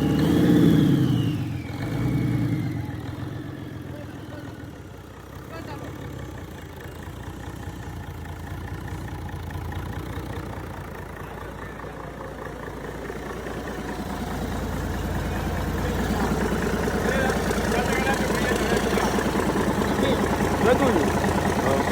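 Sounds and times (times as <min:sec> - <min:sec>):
diesel engine idling: 0:00.0 - 0:21.9.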